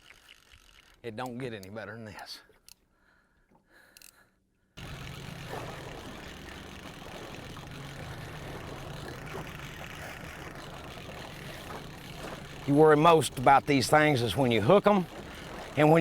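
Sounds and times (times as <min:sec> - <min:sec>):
wind: 0:00.0 - 0:16.0
boat engine idling: 0:04.8 - 0:16.0
water noise: 0:04.8 - 0:16.0.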